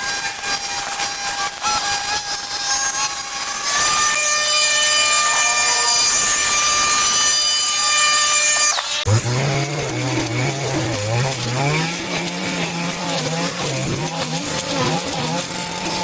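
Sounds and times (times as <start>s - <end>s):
power tool motor whining: 0.0s - 16.0s.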